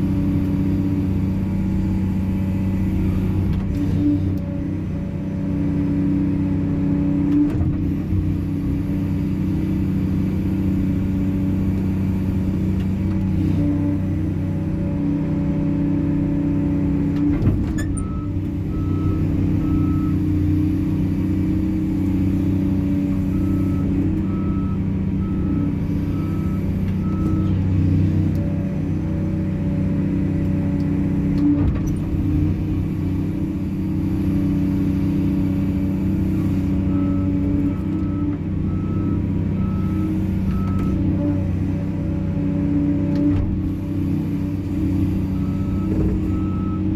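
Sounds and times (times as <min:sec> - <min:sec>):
diesel engine running: 0:00.0 - 0:46.9
reversing alarm beeping: 0:17.8 - 0:20.3, 0:23.1 - 0:27.6, 0:36.7 - 0:41.0, 0:45.2 - 0:46.9.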